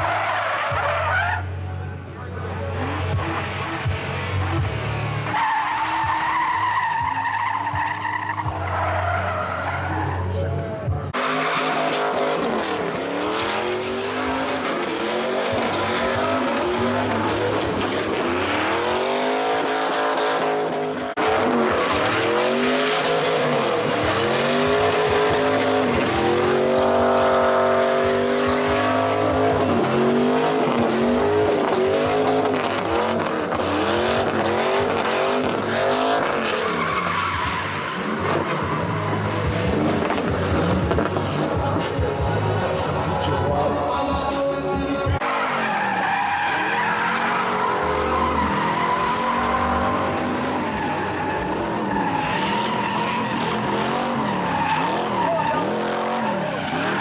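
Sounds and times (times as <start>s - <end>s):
car engine revving: 0.0s - 10.3s, 11.1s - 57.0s
tyres squealing: 45.2s - 57.0s.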